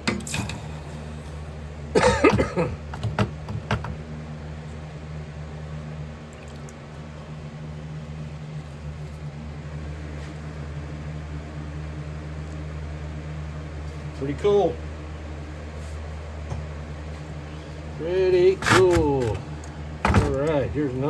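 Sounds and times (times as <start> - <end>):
electric furnace humming: 0.0 - 21.0
person coughing: 1.9 - 2.8.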